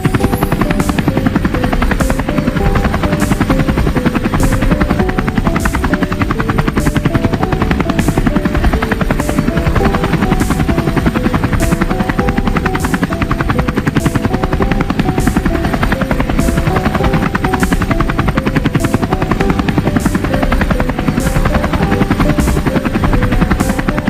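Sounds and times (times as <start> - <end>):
background music with beat: 0.0 - 24.0
helicopter rotor chopping: 0.0 - 24.0.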